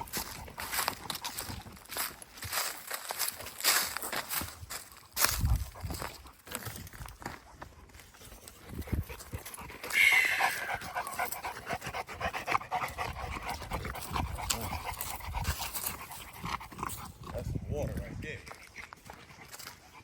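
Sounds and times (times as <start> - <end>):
dogs panting: 0.0 - 20.0
high-pitched falling sound: 9.9 - 10.8.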